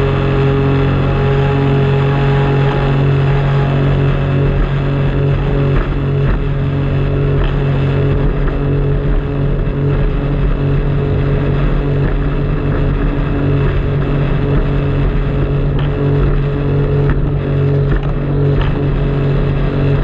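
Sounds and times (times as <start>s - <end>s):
jet ski engine running: 0.0s - 20.0s
water and wind noise: 0.0s - 20.0s.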